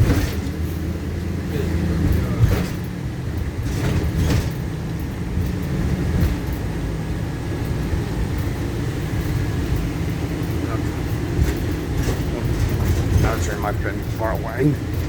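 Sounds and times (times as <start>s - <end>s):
bus engine rumble inside cabin: 0.0s - 15.0s.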